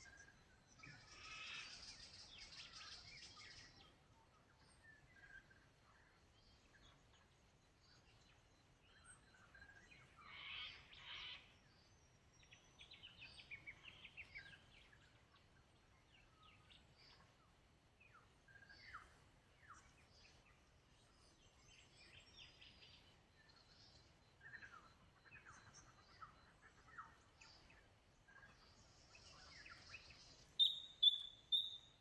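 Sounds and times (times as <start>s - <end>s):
birds singing and chirping: 0.0s - 32.0s
harsh bird calls: 9.2s - 11.6s, 28.5s - 32.0s.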